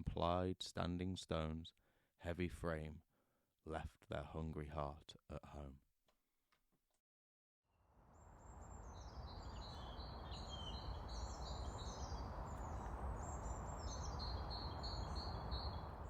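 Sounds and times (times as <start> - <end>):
small birds chirping: 8.4 - 16.0.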